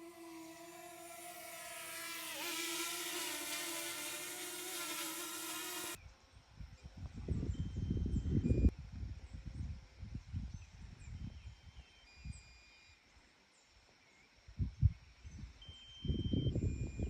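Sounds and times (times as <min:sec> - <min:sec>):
buzzing hum: 0:00.0 - 0:06.0.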